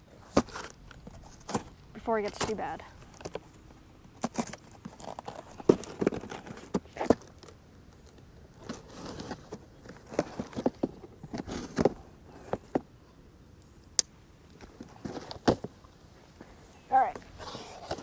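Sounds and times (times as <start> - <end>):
cardboard box being opened: 17.2 - 18.0.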